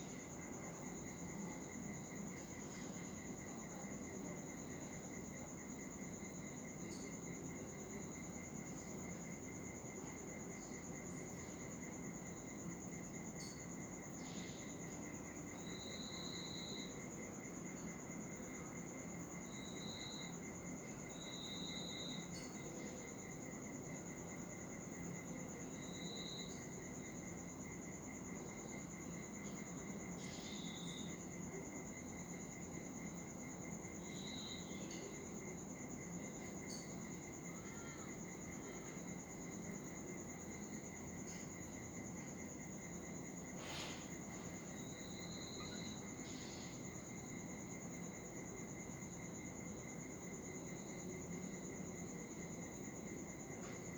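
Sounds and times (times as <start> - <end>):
insect trilling: 36.7 - 38.5, 43.6 - 47.0.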